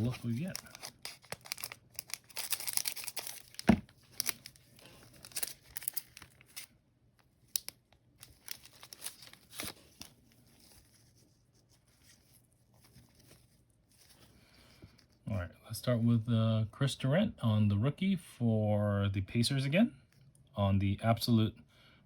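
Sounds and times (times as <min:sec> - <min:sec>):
wrapper tearing and crinkling: 0:00.0 - 0:06.7, 0:07.4 - 0:10.9.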